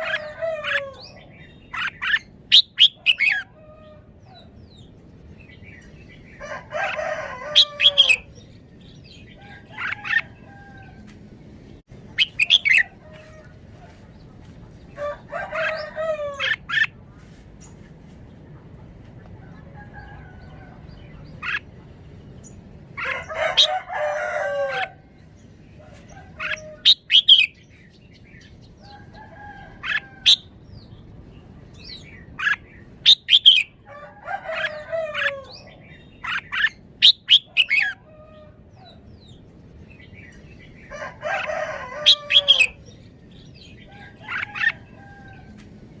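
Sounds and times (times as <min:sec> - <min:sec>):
bird warbling phrases: 0:12.1 - 0:13.3.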